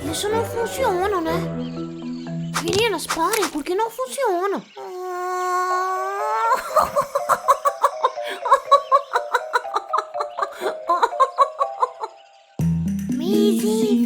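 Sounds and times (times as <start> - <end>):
cartoon character giggling: 6.4 - 12.2.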